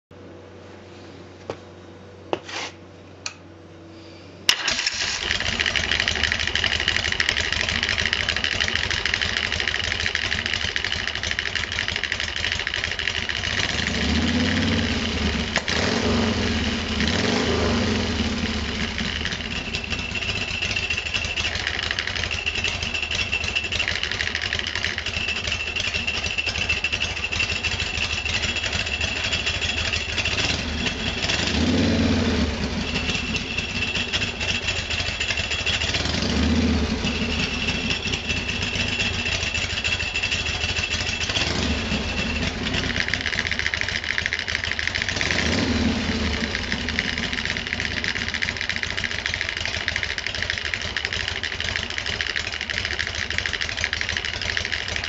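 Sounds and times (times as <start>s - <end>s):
motorcycle engine running: 4.5s - 55.0s
high belt whine: 17.6s - 43.8s.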